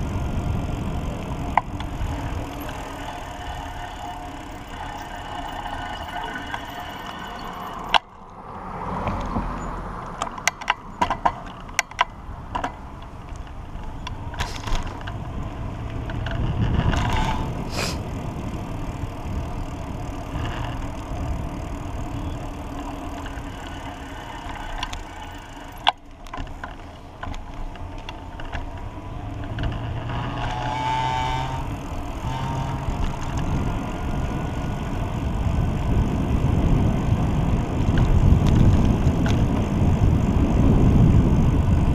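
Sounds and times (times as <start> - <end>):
cars passing: 0.0 - 41.9
road and wind noise: 0.0 - 41.9
short whining tone: 1.7 - 8.1, 30.4 - 33.6
sharp clicks and knocks: 10.1 - 15.2.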